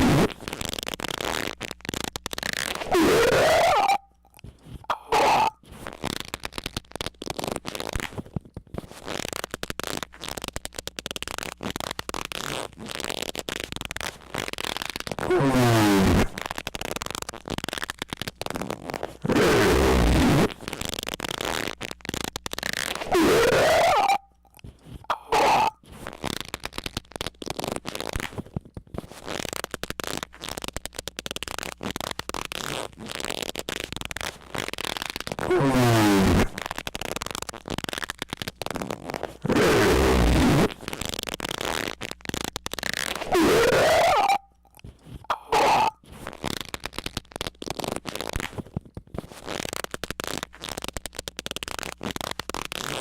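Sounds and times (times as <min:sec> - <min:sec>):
crackling rubbing squeaks: 0:00.0 - 0:53.0
loud squeak: 0:02.6 - 0:04.1, 0:43.0 - 0:44.5
loud squeaking: 0:43.1 - 0:44.5.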